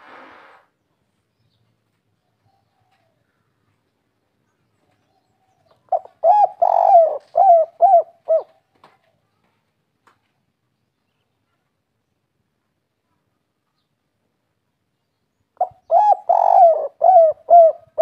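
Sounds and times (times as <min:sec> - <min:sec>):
dove cooing: 0:05.9 - 0:08.6, 0:15.6 - 0:18.0.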